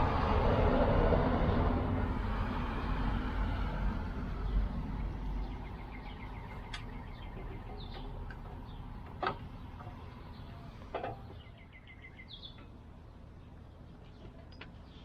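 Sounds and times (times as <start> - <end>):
low rumble: 0.0 - 11.8
birds chirping: 4.3 - 15.0.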